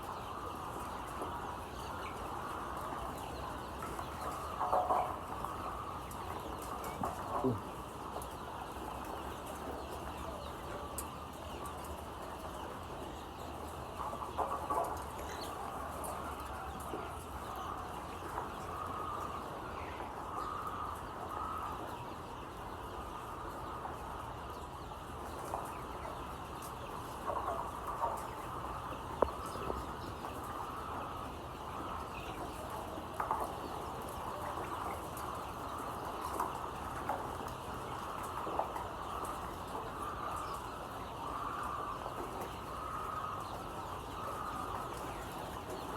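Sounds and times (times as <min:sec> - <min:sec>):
chickens clucking: 0:00.0 - 0:45.9.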